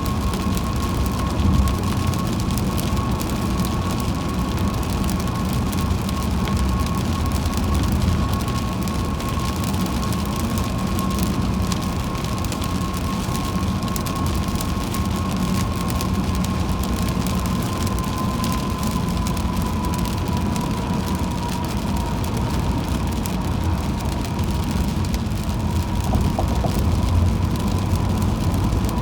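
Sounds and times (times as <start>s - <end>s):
raindrops hitting car: 0.0s - 29.0s
road and engine rumble: 0.0s - 29.0s
thin steady whine: 23.7s - 29.0s.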